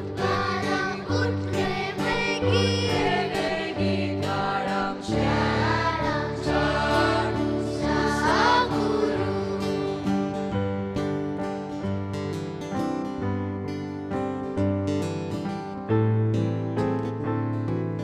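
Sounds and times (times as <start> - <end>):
choir singing a carol: 0.0 - 10.6
instrumental accompaniment: 0.0 - 18.0.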